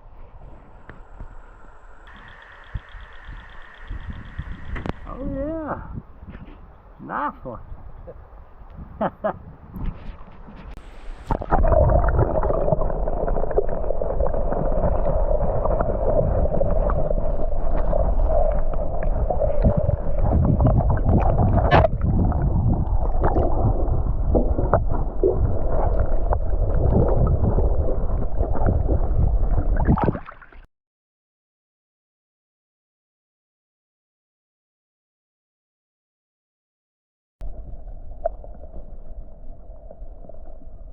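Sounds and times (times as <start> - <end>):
water gurgling and rushing: 10.8 - 30.7.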